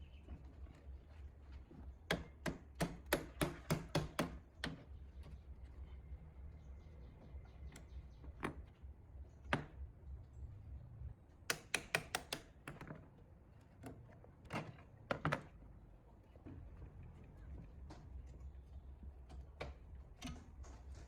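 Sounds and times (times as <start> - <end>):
tools clicking and knocking: 11.5 - 13.0.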